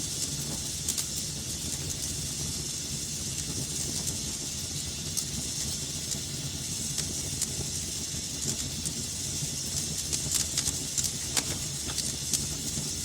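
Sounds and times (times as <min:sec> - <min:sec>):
wood fire burning: 0:00.0 - 0:13.0
crackles and pops from logs: 0:00.2 - 0:02.2, 0:09.7 - 0:12.9.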